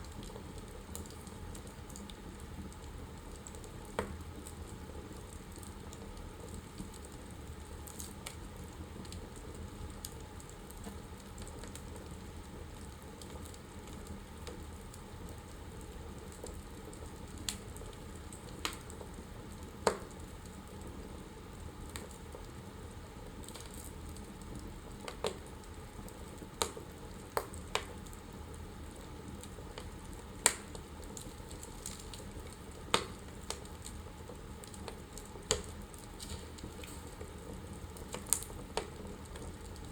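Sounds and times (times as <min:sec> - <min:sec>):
burning logs crackling and popping: 0:00.0 - 0:39.9
fire hissing: 0:34.6 - 0:38.9.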